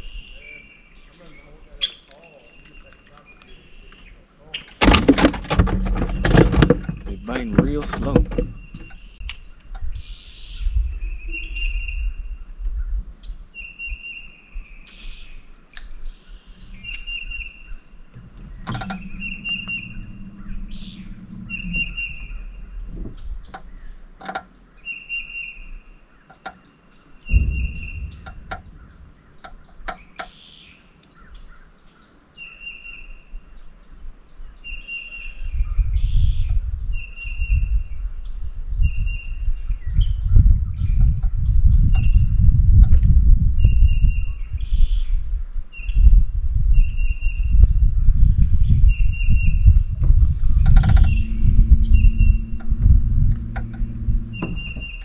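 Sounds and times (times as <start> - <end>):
rumbling low noise: 4.8 - 9.2, 16.5 - 25.9, 27.2 - 30.4, 47.6 - 55.0
songbirds trilling: 5.8 - 12.0, 13.6 - 35.4, 50.2 - 55.0.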